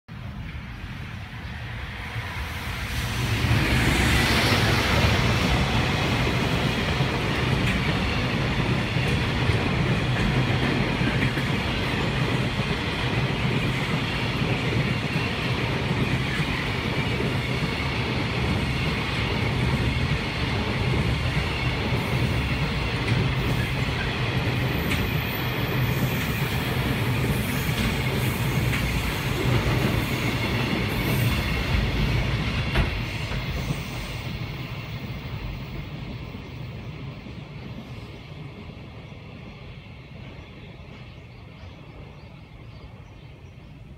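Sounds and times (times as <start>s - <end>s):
freight train wheels clattering: 4.3s - 36.3s.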